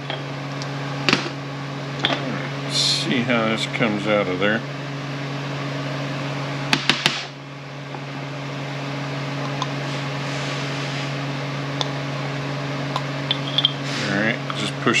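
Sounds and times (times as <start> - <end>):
background hum: 0.0 - 15.0.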